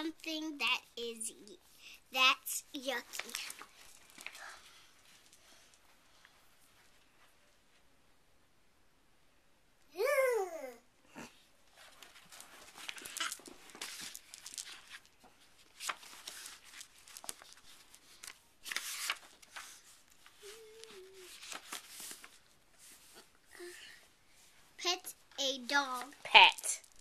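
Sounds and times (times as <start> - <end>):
rustling and clicking of handling: 2.6 - 7.4, 11.7 - 23.4, 24.5 - 27.0.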